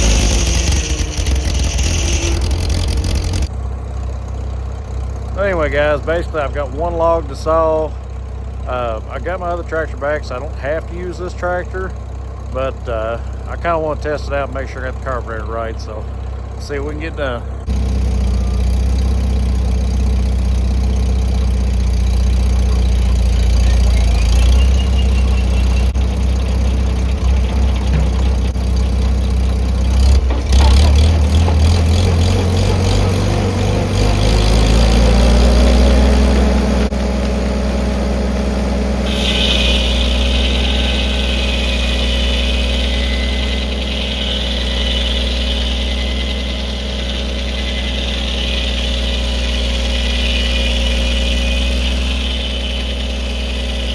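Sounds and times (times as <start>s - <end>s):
tractor engine running: 0.0s - 53.9s
high whine: 33.9s - 53.9s.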